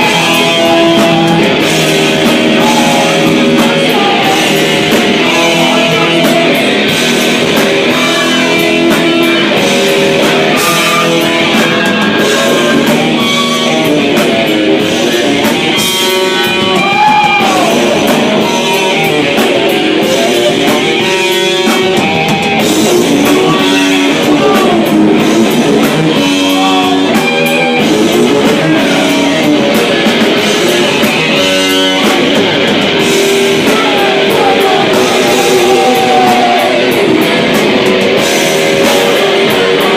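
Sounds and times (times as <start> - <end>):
rock music: 0.0 - 39.9.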